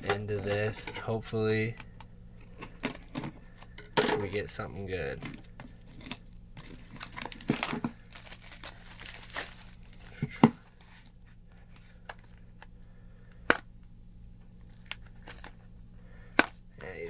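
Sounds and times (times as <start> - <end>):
plastic wrapping tearing and crinkling: 4.4 - 10.8.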